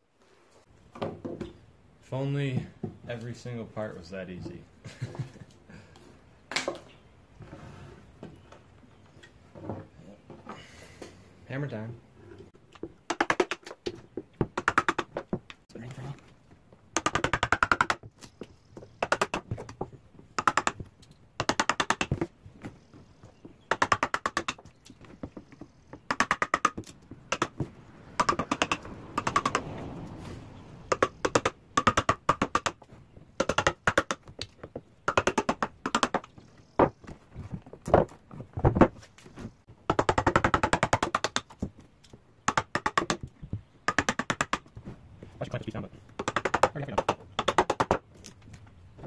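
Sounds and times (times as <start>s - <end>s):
hammering on wood: 25.2s - 29.7s, 30.9s - 32.8s.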